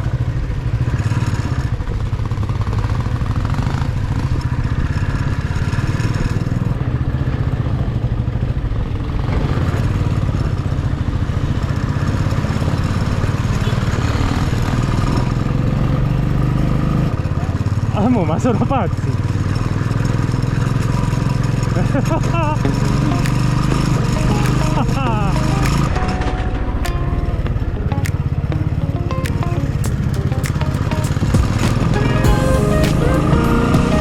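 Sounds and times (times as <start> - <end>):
road noise: 0.0 - 34.0
vehicle engine running: 16.8 - 34.0.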